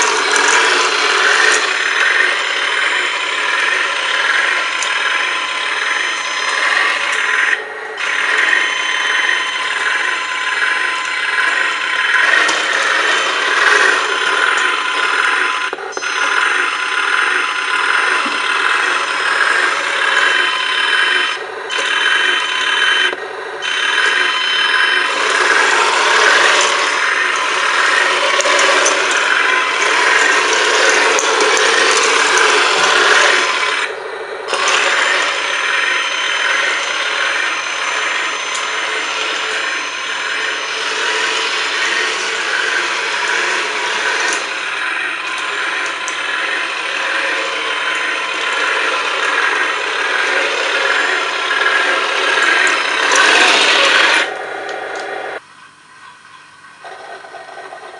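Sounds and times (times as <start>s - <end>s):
tracks clattering: 0.0s - 16.4s, 17.2s - 55.4s
electric motors whirring and grinding: 0.0s - 57.9s.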